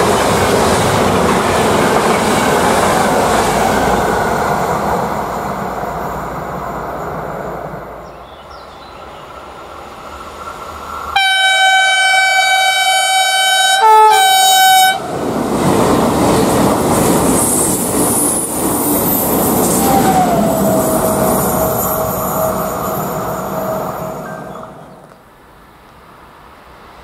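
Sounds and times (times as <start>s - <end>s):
train passing at speed: 0.0s - 27.0s
train horn: 11.2s - 15.1s.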